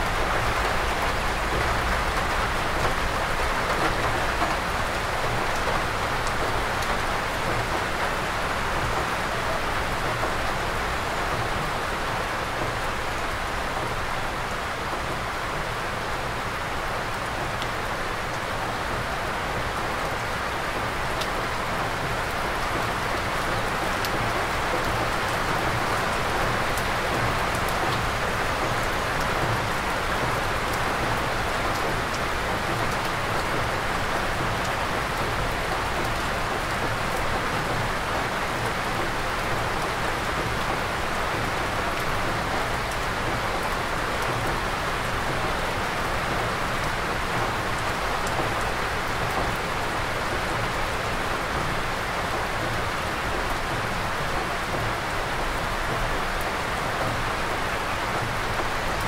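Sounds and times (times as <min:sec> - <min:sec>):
rain on foliage: 0:00.0 - 0:59.0.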